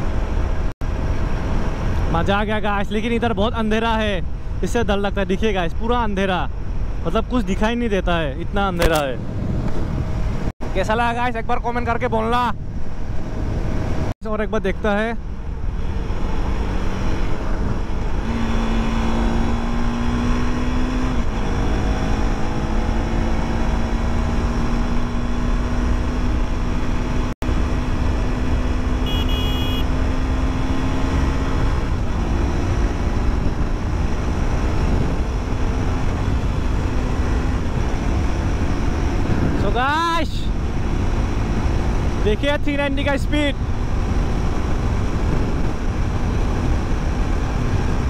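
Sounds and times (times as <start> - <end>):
heavy wind rush: 0.0 - 29.0, 29.9 - 48.0
motorcycle engine at speed: 15.0 - 48.0.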